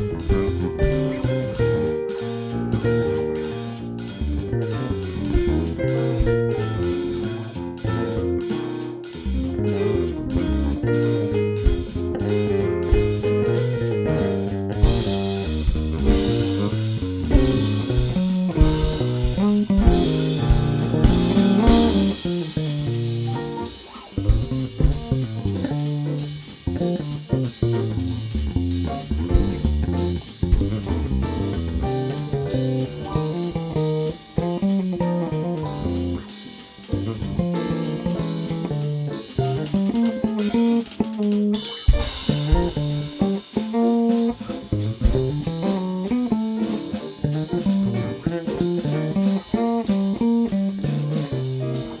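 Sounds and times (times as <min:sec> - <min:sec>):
bluesy instrumental band music: 0:00.0 - 0:52.0.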